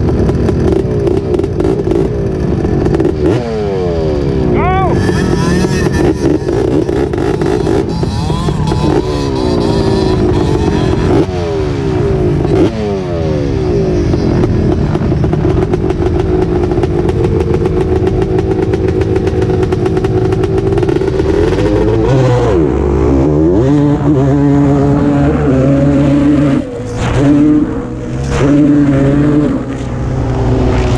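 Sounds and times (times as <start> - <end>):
racing engine at full throttle: 0.0 - 30.9.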